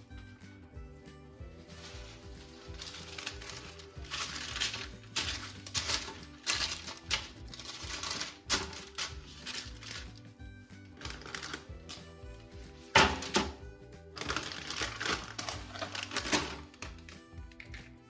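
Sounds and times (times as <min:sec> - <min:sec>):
soft background music: 0:00.0 - 0:18.0
crackly rustling and clicking: 0:01.7 - 0:10.3, 0:10.9 - 0:12.0, 0:14.2 - 0:18.0.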